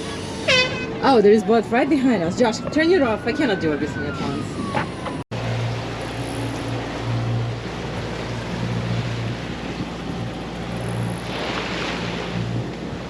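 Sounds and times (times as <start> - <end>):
boat engine drone: 0.0 - 13.0
wind and water hiss: 5.3 - 13.0.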